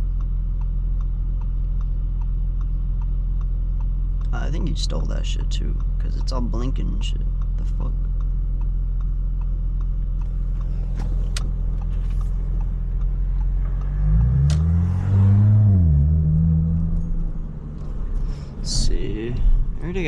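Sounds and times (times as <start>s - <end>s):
car engine revving and shifting: 10.2s - 20.0s.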